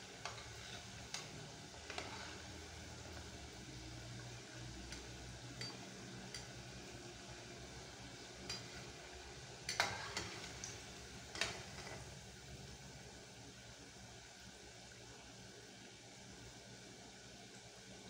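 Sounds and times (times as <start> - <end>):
frying in oil sizzle: 0.0 - 18.0
metal spoon clicking against pan: 4.9 - 6.6, 9.7 - 11.6.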